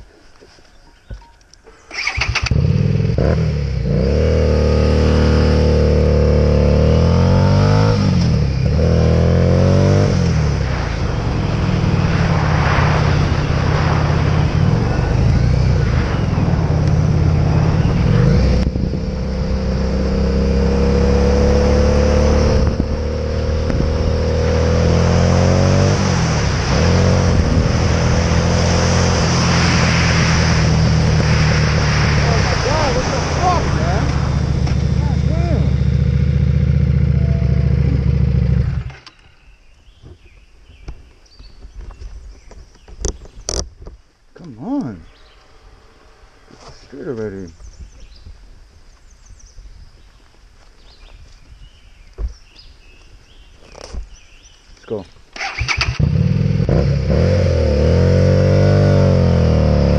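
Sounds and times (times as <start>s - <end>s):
motorcycle engine revving: 1.9s - 39.2s, 55.4s - 59.9s.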